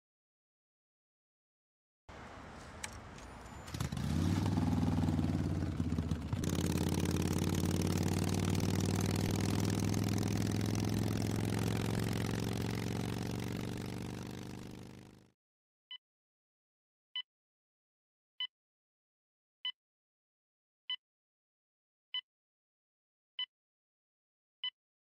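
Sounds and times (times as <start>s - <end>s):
motorcycle engine running: 3.8s - 15.2s.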